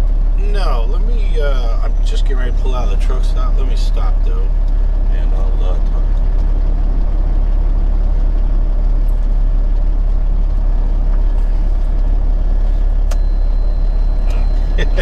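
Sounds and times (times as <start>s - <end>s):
truck diesel engine rumbling: 0.0s - 15.0s.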